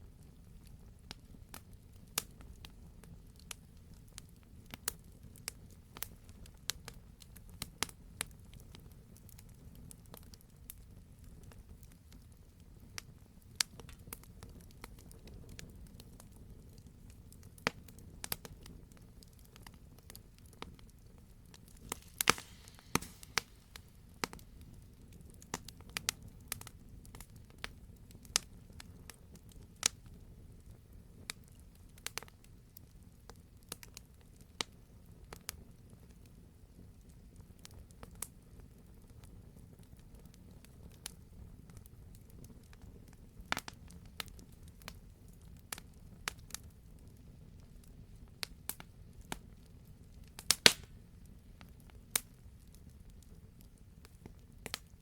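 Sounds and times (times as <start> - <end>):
fire crackling in fireplace: 0.0 - 55.0
low rush of flame: 12.8 - 27.6
sharp pops and snaps: 21.5 - 24.7, 50.3 - 51.0.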